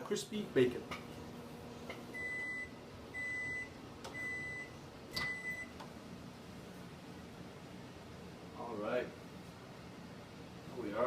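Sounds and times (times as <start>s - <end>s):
microwave high-pitched beeps: 2.1s - 5.8s.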